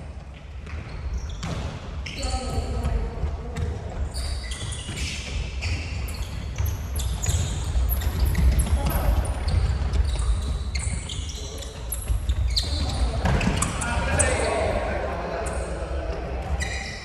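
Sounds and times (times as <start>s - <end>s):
shoe squeaks on court: 0.6s - 3.0s, 4.0s - 14.8s, 16.4s - 17.0s
players calling out: 12.5s - 17.0s.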